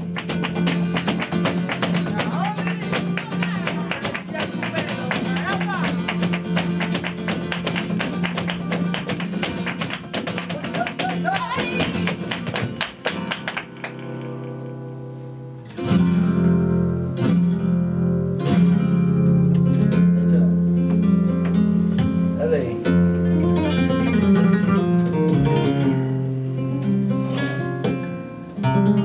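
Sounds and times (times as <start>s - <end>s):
rapid percussive strikes: 0.0s - 14.5s
flamenco guitar: 0.0s - 29.0s.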